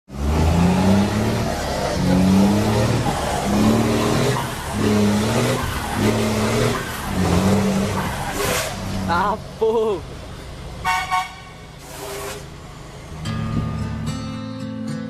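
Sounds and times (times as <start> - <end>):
diesel truck engine brake bursts: 2.8 - 9.1, 10.9 - 12.7.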